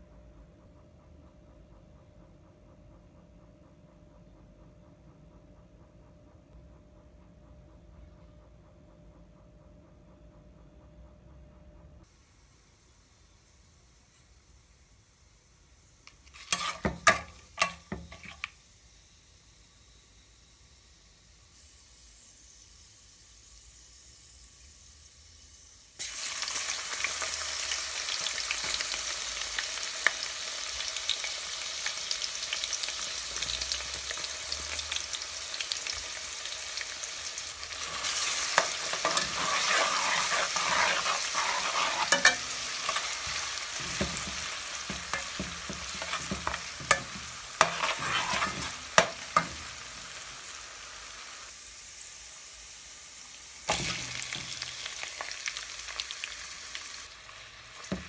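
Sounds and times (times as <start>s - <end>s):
food sizzling in hot oil: 16.1s - 20.0s, 20.7s - 58.0s
utensil scraping a pan: 16.2s - 18.5s, 37.8s - 50.0s.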